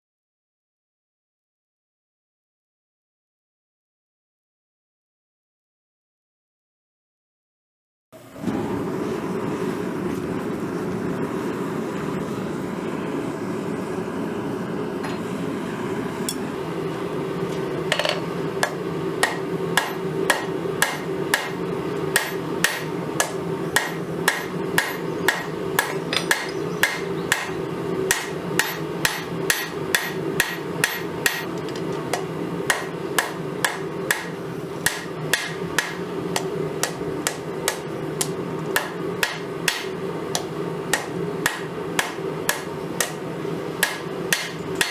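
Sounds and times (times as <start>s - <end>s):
hammer striking steel on anvil: 17.9s - 43.2s, 43.8s - 44.9s.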